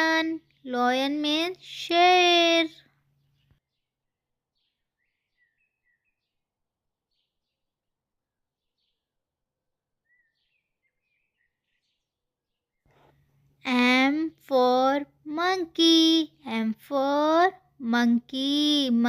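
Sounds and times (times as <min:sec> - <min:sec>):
faint bird chirps: 0:02.8 - 0:07.7, 0:10.0 - 0:14.7.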